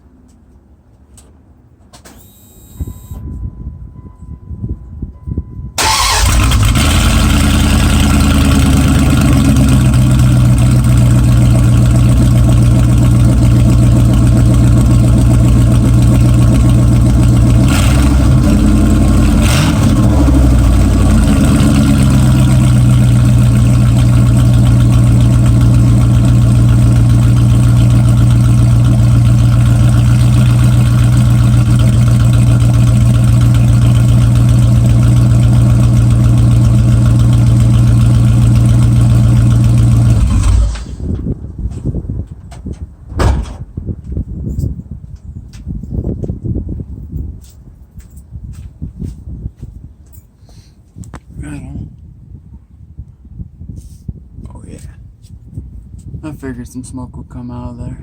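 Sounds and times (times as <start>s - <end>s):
truck engine idling: 5.8s - 41.2s
sharp engine knocks: 42.5s - 43.8s.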